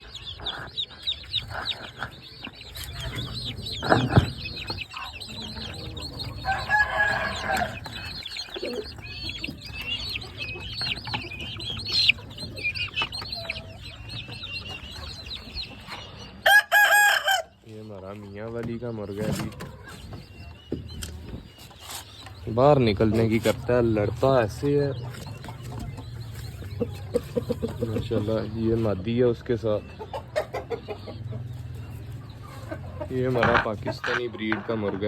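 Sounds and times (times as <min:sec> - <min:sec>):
chickens clucking: 0:00.0 - 0:35.0
rooster crowing: 0:05.1 - 0:08.3, 0:16.4 - 0:17.6.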